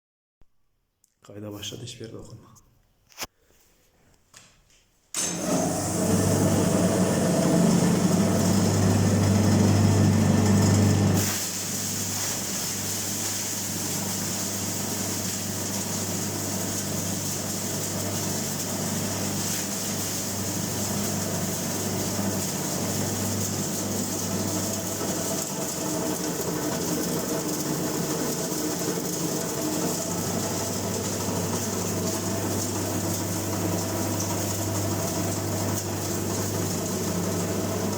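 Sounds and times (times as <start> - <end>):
cutting machine hum and whir: 5.2 - 11.2, 15.0 - 37.9.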